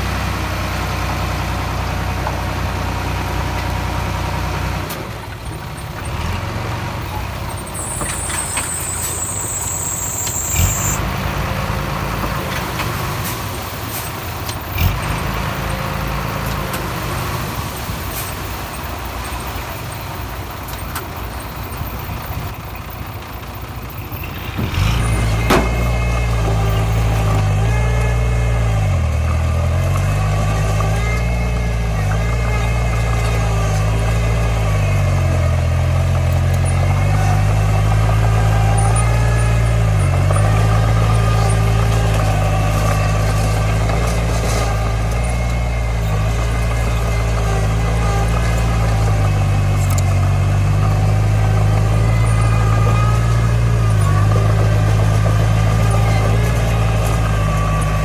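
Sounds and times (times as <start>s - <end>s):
diesel engine of heavy machinery: 0.0s - 58.0s
sharp knocks: 24.6s - 26.1s.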